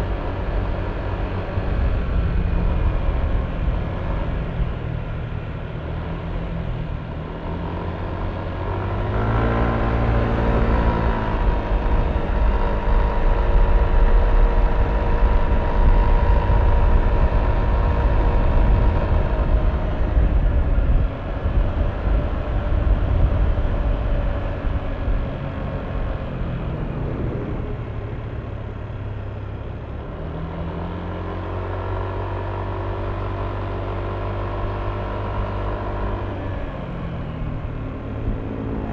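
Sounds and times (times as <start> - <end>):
scooter engine under way: 0.0 - 38.9
wind buffeting microphone: 10.7 - 29.6.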